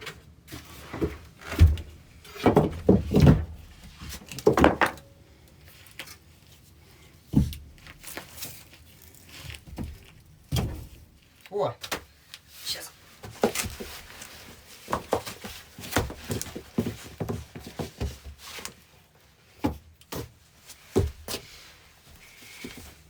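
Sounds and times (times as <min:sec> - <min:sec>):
wooden knocks and thuds: 0:00.9 - 0:05.1, 0:07.3 - 0:07.8, 0:09.7 - 0:11.0.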